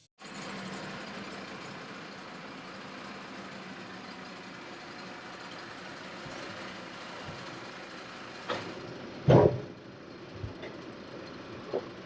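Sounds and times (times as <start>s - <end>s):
engine idling: 0.2s - 12.0s
loud thump: 9.2s - 9.7s.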